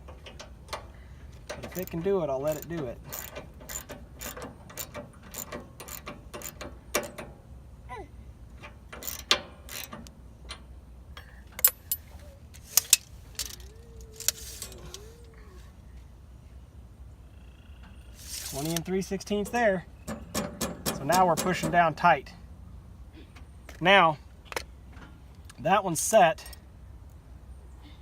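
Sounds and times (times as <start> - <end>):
ratchet wrench clicking: 1.7 - 7.1, 9.0 - 10.0, 11.5 - 15.0.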